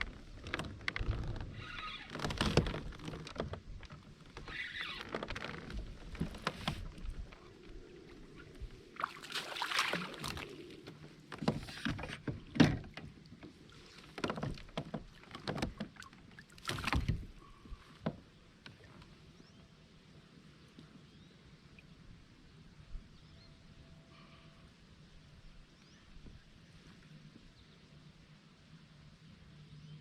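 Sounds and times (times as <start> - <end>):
paddle splashes: 4.1 - 19.1.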